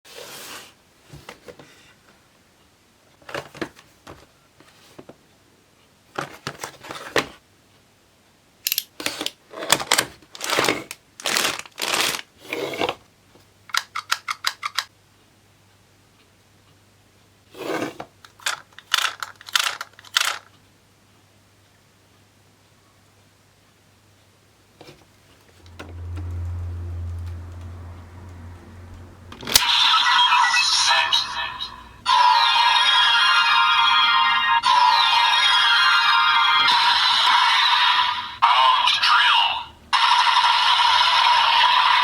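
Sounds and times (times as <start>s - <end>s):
packaging tearing and crinkling: 9.0s - 12.3s.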